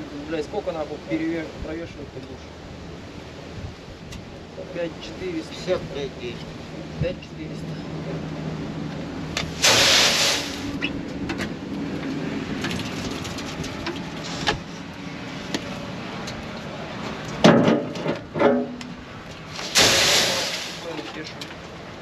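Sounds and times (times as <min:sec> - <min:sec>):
rush of noise: 0:00.6 - 0:17.1, 0:19.0 - 0:22.0
tractor engine running: 0:08.8 - 0:17.6
loud clatter: 0:19.6 - 0:21.2.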